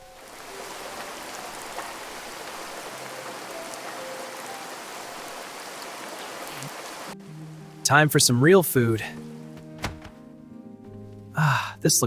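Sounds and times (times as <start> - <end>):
steady rain falling: 0.0 - 9.6.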